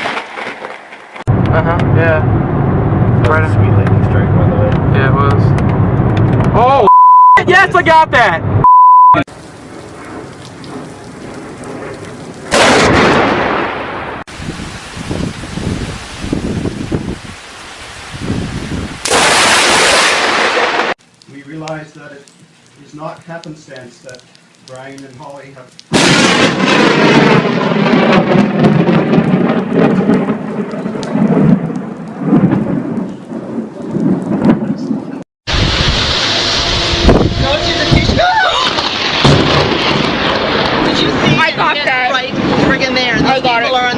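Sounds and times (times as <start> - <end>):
thunderclap: 0.0 - 6.6, 9.5 - 17.4, 18.1 - 21.0, 25.9 - 43.9
low rumbling thunder: 1.3 - 6.6, 9.4 - 17.4, 25.9 - 43.9
rain falling: 9.3 - 36.7, 37.4 - 43.9.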